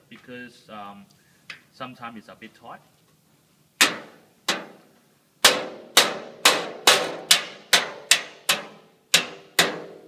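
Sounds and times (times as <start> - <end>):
hammer striking metal: 5.4 - 10.0.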